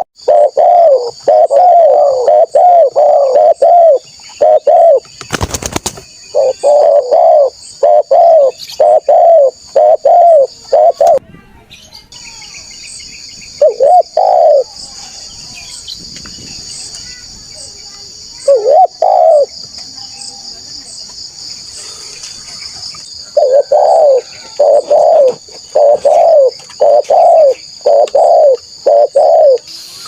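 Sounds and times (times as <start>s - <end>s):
dove cooing: 0.0s - 5.0s, 6.3s - 11.2s, 13.6s - 14.7s, 18.4s - 19.5s, 23.2s - 29.6s
high insect drone: 0.0s - 11.2s, 12.2s - 30.0s.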